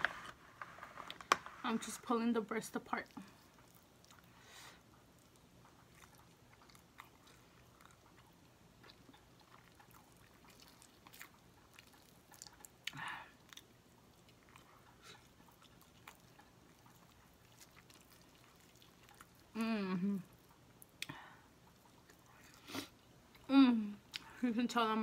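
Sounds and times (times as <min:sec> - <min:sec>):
close chewing: 0:03.0 - 0:23.5.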